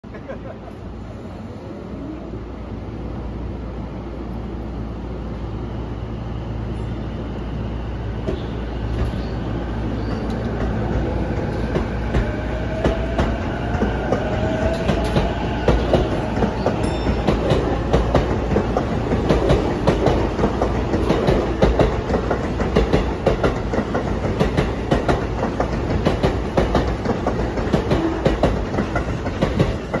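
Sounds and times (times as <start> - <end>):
electric train whine: 0.1 - 30.0
clickety-clack of train wheels: 8.2 - 9.3, 9.9 - 30.0.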